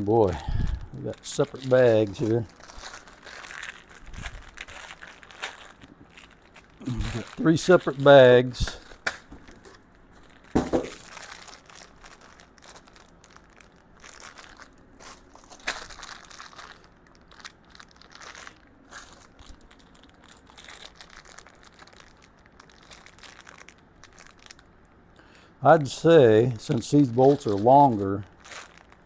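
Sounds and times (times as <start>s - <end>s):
plastic bags crinkling: 0.0s - 24.9s, 25.8s - 29.0s.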